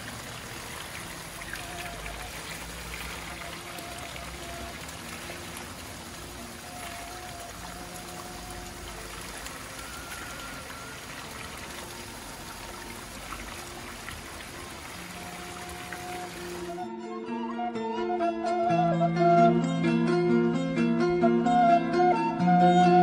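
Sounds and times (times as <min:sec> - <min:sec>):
rain falling: 0:00.0 - 0:16.8
water trickling: 0:00.0 - 0:16.8.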